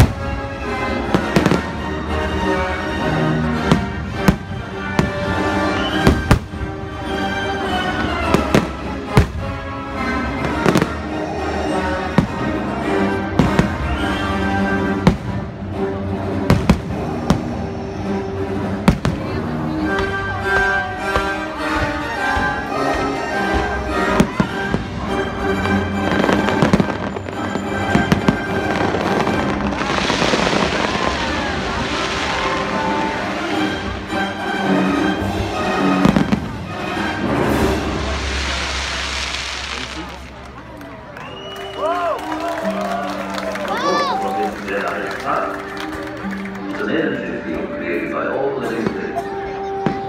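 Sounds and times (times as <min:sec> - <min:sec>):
firework bangs: 0:00.0 - 0:01.9, 0:03.5 - 0:07.0, 0:13.3 - 0:15.6, 0:16.4 - 0:17.8, 0:23.5 - 0:40.6
loud music: 0:00.0 - 0:40.2.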